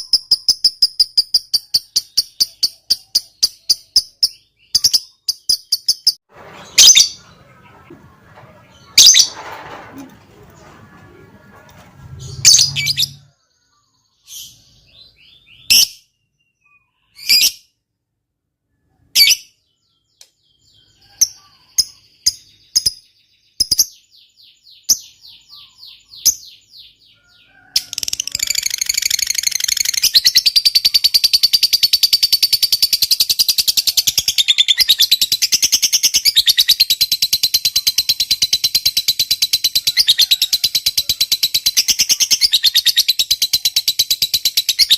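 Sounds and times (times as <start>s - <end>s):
lovebird chirping: 0.0s - 9.4s, 10.0s - 17.7s, 18.8s - 44.9s
lovebird chattering trill: 27.9s - 44.9s.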